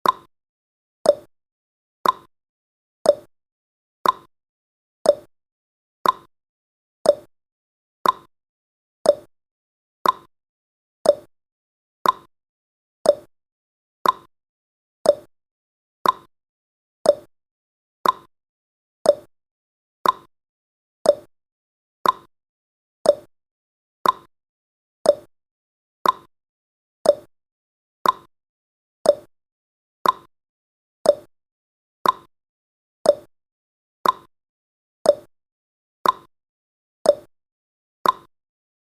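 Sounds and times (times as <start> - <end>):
timer ticking: 0.0 - 0.3, 1.1 - 1.3, 2.0 - 2.3, 3.1 - 3.3, 4.0 - 4.3, 5.1 - 5.3, 6.0 - 6.3, 7.0 - 7.3, 8.0 - 8.3, 9.0 - 9.3, 10.0 - 10.3, 11.0 - 11.3, 12.0 - 12.3, 13.0 - 13.3, 14.0 - 14.3, 15.0 - 15.3, 16.0 - 16.3, 17.0 - 17.3, 18.0 - 18.3, 19.0 - 19.3, 20.0 - 20.3, 21.0 - 21.3, 22.0 - 22.3, 23.0 - 23.3, 24.0 - 24.3, 25.0 - 25.3, 26.0 - 26.3, 27.0 - 27.3, 28.0 - 28.3, 29.0 - 29.3, 30.0 - 30.3, 31.0 - 31.3, 32.0 - 32.3, 33.0 - 33.3, 34.0 - 34.3, 35.1 - 35.3, 36.0 - 36.3, 37.1 - 37.3, 38.0 - 38.3.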